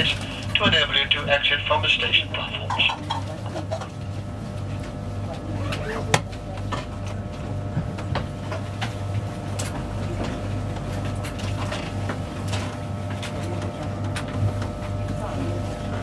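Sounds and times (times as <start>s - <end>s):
faint steady hum: 0.0s - 3.8s.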